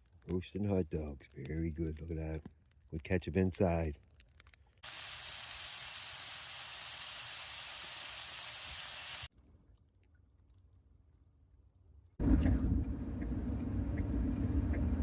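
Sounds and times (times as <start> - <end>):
steady hiss: 4.8 - 9.3.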